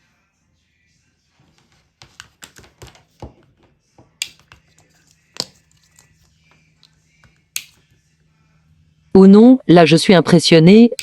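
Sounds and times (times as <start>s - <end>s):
faint low hum: 3.3s - 11.0s.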